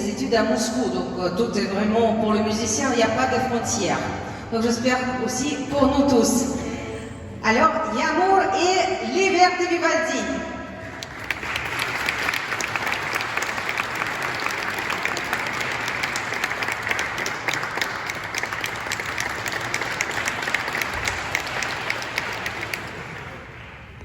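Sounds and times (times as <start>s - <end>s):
audience applauding: 10.8s - 24.0s.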